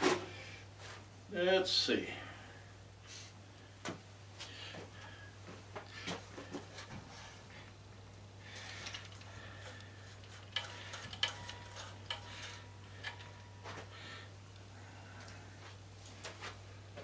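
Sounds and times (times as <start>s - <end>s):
steady low hum: 0.0s - 17.0s
hand tools clicking on metal: 8.6s - 13.8s.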